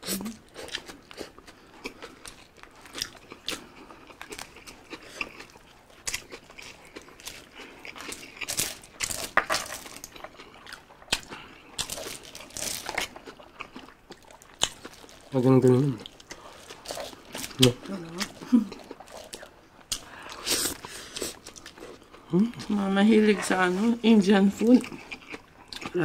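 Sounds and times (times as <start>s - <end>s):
chewing with wet smacks: 0.0s - 23.6s, 24.4s - 26.0s
hands rustling in foil trays: 22.9s - 24.7s.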